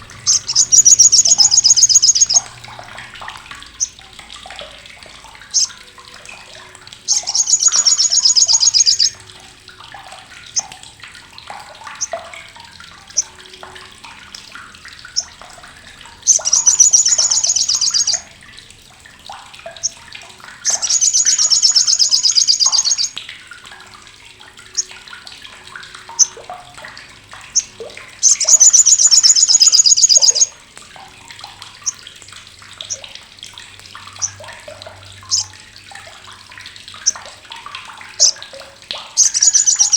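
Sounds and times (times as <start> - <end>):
bird harsh rapid chattering: 0.3 - 2.4, 7.1 - 9.1, 16.3 - 18.2, 20.7 - 23.1, 27.6 - 30.5, 39.2 - 39.9.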